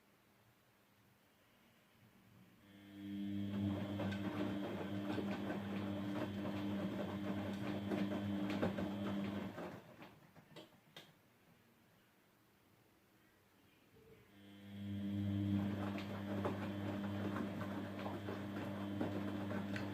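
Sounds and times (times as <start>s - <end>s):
washing machine humming: 2.6s - 10.6s, 14.3s - 19.9s.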